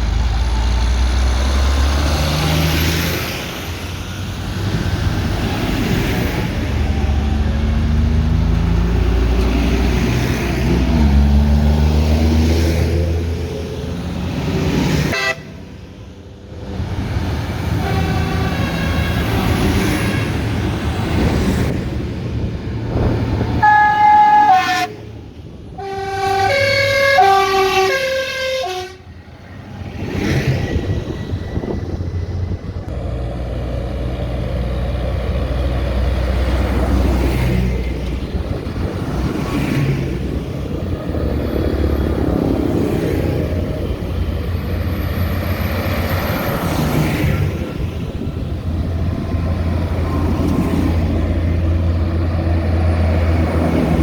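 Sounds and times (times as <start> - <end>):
tractor engines rumbling: 0.0 - 54.0
musical horn playing tune: 15.1 - 15.6, 23.6 - 25.0, 25.8 - 29.0.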